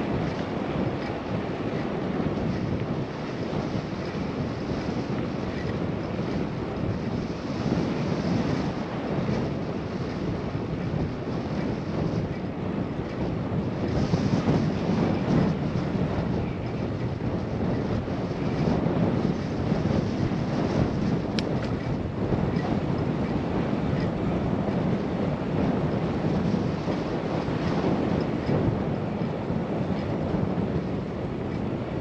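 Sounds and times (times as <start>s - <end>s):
wind rushing over microphone: 0.0s - 32.0s.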